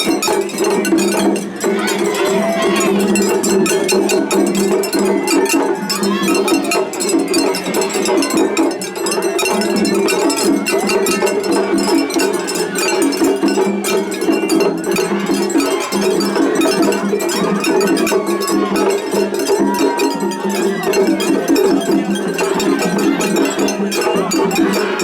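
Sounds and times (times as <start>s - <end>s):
drum strikes: 0.0s - 25.0s.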